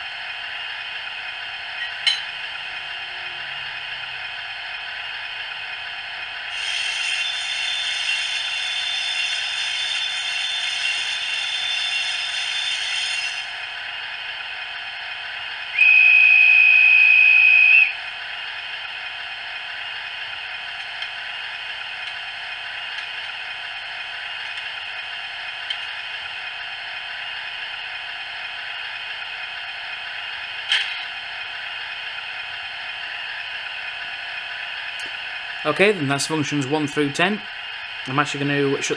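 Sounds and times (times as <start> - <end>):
diesel engine idling: 0.0 - 6.5, 17.9 - 38.8
wheel flange squeal: 6.5 - 13.5
hiss: 6.5 - 13.6
guard's whistle: 15.8 - 18.0.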